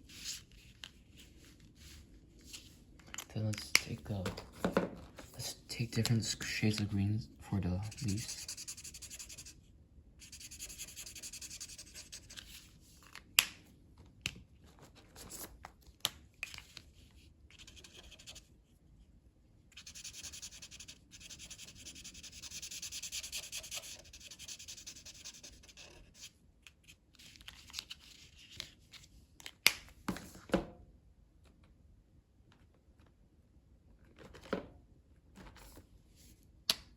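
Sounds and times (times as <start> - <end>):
colouring on paper: 7.8 - 9.6, 10.2 - 12.3, 19.8 - 26.2.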